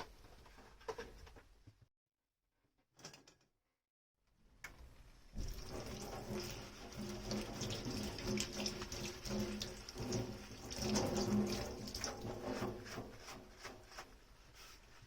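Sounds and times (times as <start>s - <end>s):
tap water running into sink: 5.3s - 13.0s.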